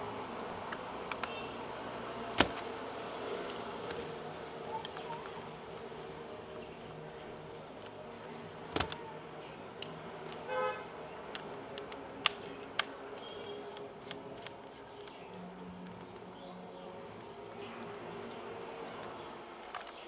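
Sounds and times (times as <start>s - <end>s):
plastic clicks and taps: 0.7s - 1.5s, 2.4s - 2.7s, 8.7s - 9.1s, 11.2s - 20.0s.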